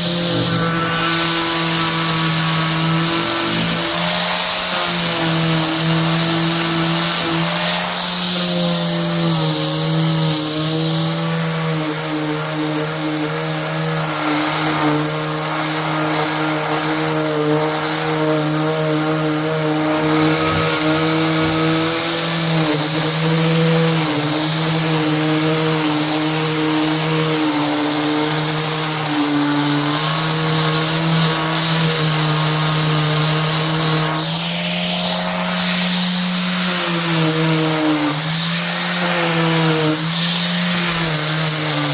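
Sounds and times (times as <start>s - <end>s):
high hiss: 0.0s - 8.6s, 17.2s - 25.1s
power tool motor hum: 0.0s - 41.9s.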